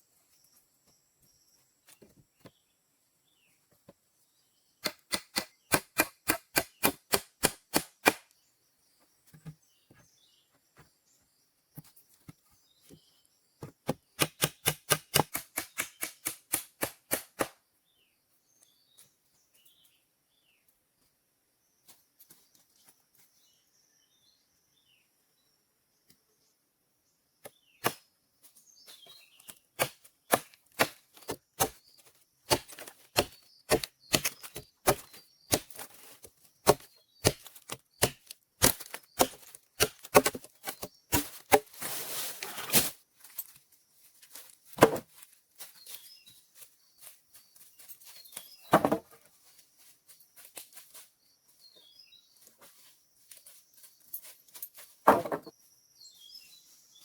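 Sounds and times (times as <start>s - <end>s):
hand tool striking wood: 4.8s - 8.2s, 13.6s - 17.6s, 29.8s - 31.8s, 32.5s - 36.0s, 36.6s - 41.8s.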